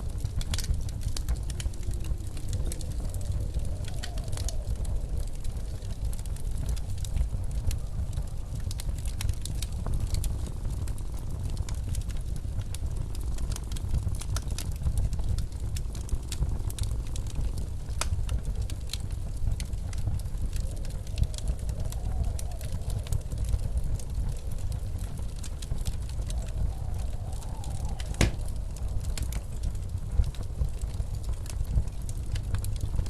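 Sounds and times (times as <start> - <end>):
wind whistling: 0.0 - 10.6, 17.8 - 33.0
blizzard wind rumbling: 0.0 - 33.0
wood fire crackling: 0.0 - 33.0.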